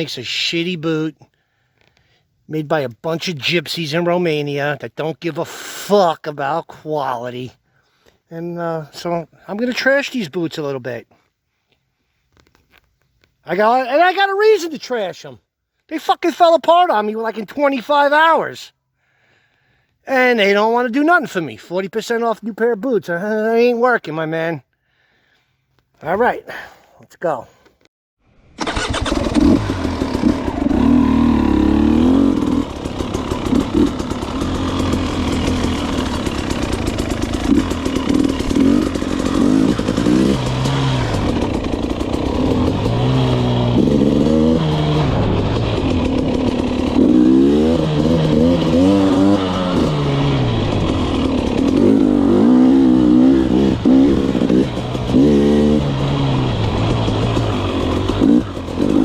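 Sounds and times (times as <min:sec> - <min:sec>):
dirt bike engine revving: 0:28.6 - 0:59.0.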